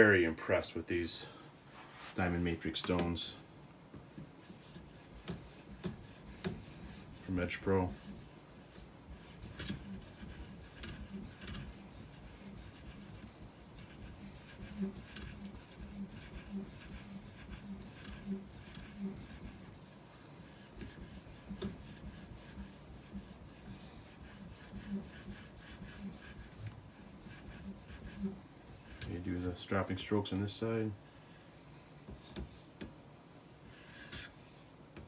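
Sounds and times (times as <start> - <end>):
knife rubbing on sharpening stone: 7.9 - 19.8.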